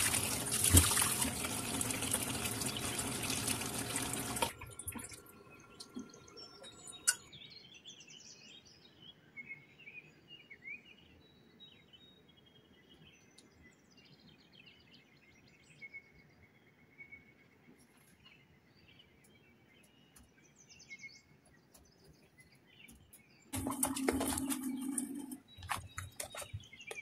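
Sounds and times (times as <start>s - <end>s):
water splashing in a steel bowl: 0.0s - 6.1s, 23.6s - 27.0s
faint bird chirps: 4.8s - 23.6s.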